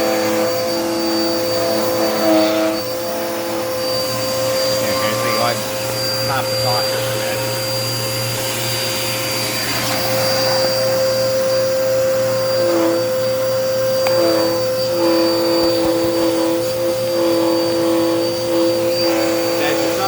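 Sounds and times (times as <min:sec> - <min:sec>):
vacuum cleaner whining: 0:00.0 - 0:20.0.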